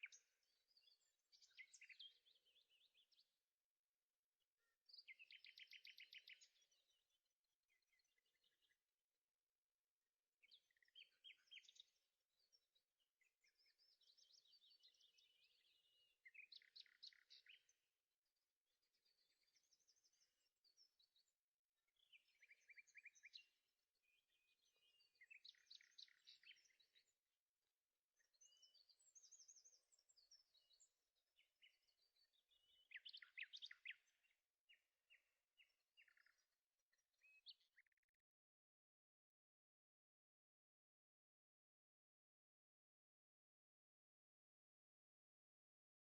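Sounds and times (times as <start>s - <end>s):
songbird chirps and trills: 0.0s - 3.7s, 4.4s - 9.4s, 10.4s - 38.2s.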